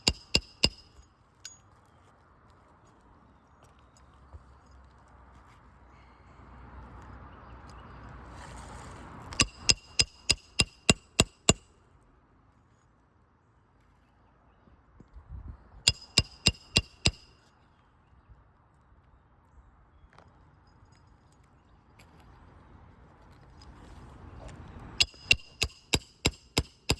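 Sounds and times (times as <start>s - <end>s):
hammer striking metal: 0.0s - 1.0s, 9.4s - 11.6s, 15.9s - 17.3s, 25.0s - 26.9s.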